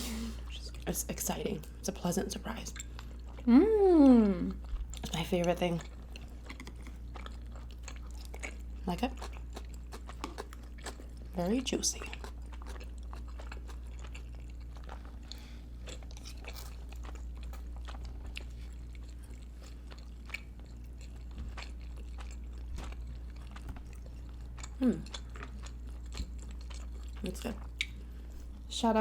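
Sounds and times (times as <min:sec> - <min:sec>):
low electrical hum: 0:00.0 - 0:29.0
chewing soft juicy food: 0:00.5 - 0:28.8
person humming: 0:03.5 - 0:04.6.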